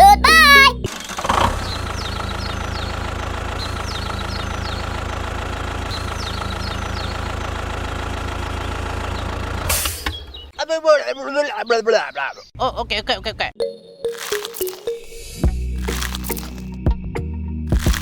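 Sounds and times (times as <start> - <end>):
small engine idling: 0.9 - 9.7.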